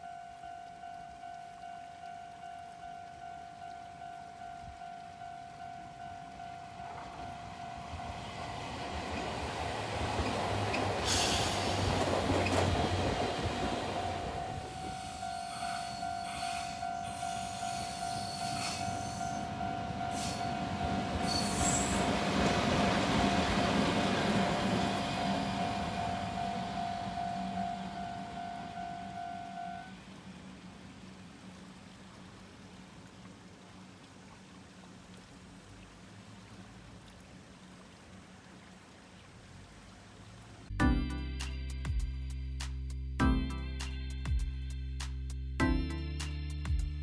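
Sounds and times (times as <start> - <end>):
level crossing warning bell: 0.0 - 9.2, 13.0 - 30.0
electric trains passing: 0.0 - 30.7.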